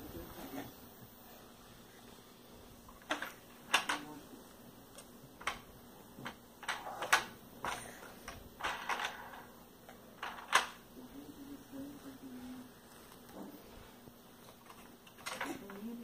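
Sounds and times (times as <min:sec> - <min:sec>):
plastic toy clicking and knocking: 0:03.0 - 0:04.1, 0:05.4 - 0:09.4, 0:10.2 - 0:10.8.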